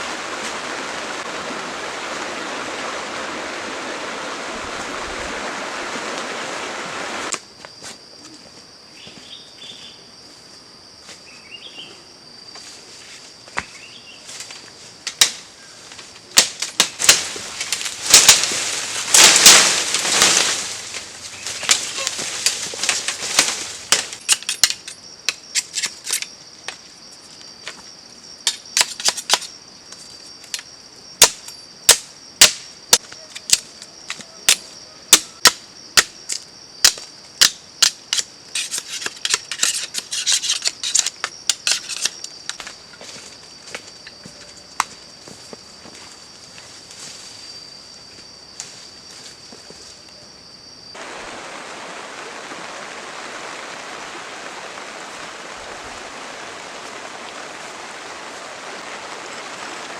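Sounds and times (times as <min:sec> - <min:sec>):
crackling and rustling: 0:14.3 - 0:26.3
sharp snaps and knocks: 0:14.4 - 0:26.8, 0:28.4 - 0:42.8.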